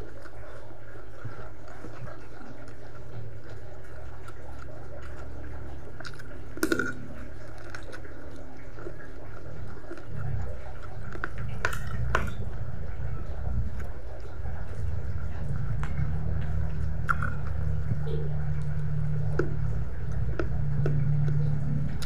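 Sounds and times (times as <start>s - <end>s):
wet chewing and lip-smacking: 0.0s - 22.0s
low background rumble: 8.2s - 22.0s.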